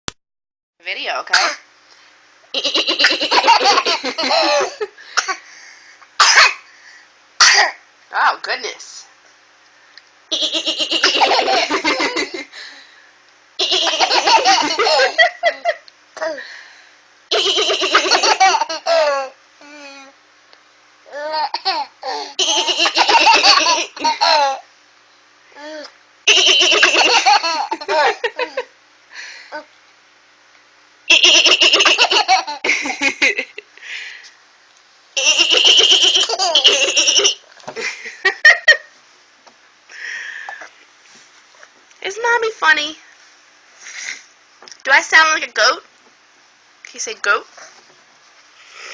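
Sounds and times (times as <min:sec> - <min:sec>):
baby laughing: 0:02.6 - 0:04.9, 0:10.3 - 0:12.4, 0:13.6 - 0:15.8, 0:17.3 - 0:19.3, 0:21.1 - 0:24.6, 0:26.3 - 0:28.7, 0:31.1 - 0:33.3, 0:35.2 - 0:37.4.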